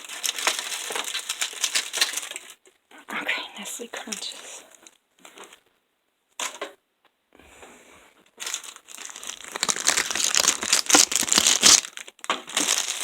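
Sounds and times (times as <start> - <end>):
packaging crinkling: 0.0 - 2.8, 3.6 - 5.7, 8.3 - 13.0.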